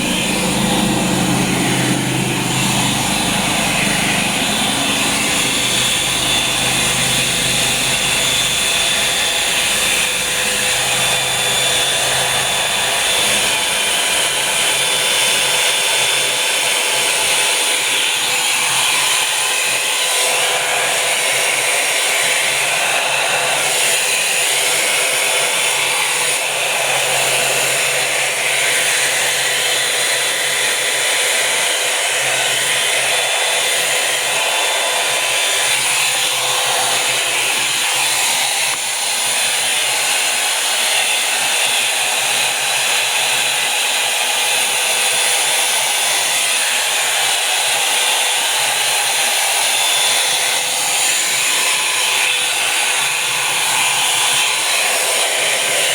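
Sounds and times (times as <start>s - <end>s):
motor whine: 0.0s - 16.6s, 31.8s - 40.8s
hair dryer airy hiss: 0.0s - 55.9s.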